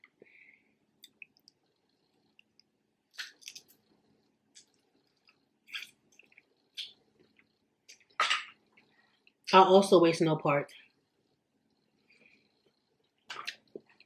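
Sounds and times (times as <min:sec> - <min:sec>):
crab shells crackling and chewing: 0:01.0 - 0:09.4.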